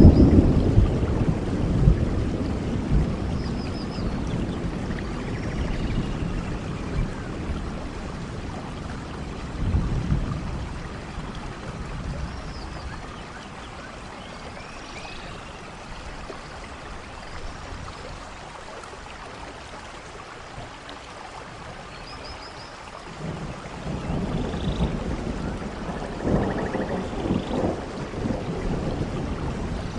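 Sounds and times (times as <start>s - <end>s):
distant thunder rumble: 0.0s - 13.8s, 23.2s - 29.9s
steady rain falling: 0.0s - 29.9s.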